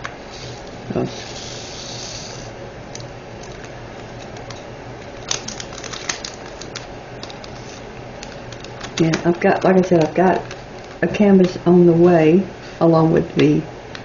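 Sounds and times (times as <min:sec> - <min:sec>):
packaging rustling: 0:03.4 - 0:11.6.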